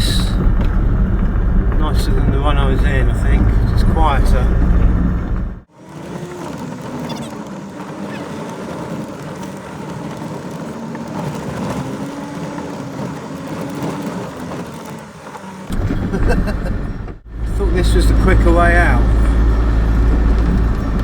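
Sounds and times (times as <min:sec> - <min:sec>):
van engine running: 0:00.0 - 0:06.6, 0:15.6 - 0:21.0
road and tyre noise: 0:00.0 - 0:21.0.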